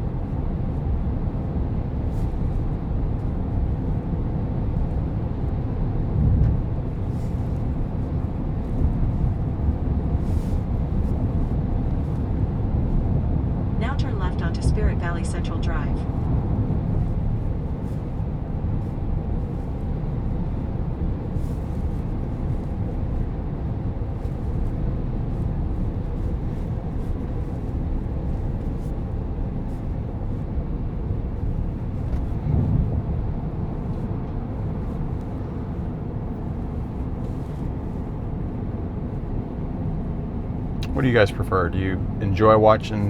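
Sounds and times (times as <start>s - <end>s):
road and tyre rumble: 0.0s - 43.0s.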